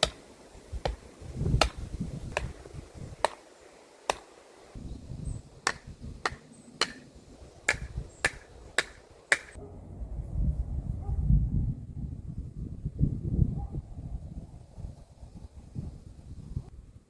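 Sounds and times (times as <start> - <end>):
wind on microphone: 0.6 - 3.3, 4.7 - 6.4, 7.2 - 8.8, 9.6 - 17.0
hammer striking wood: 4.1 - 4.3, 5.7 - 7.1, 7.7 - 9.6.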